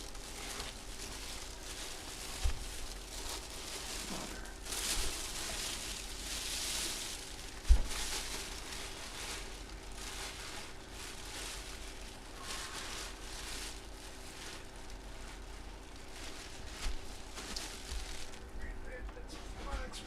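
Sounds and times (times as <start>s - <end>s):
packaging rustling: 0.0s - 18.6s
steady low hum: 0.0s - 20.0s.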